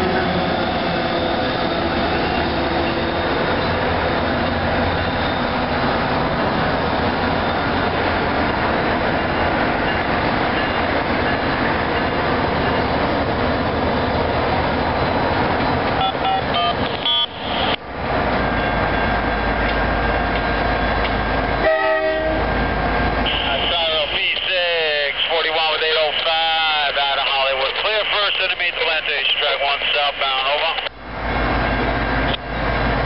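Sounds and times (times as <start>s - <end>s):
diesel trains rumbling: 0.0s - 33.0s
brief tones: 16.0s - 17.8s.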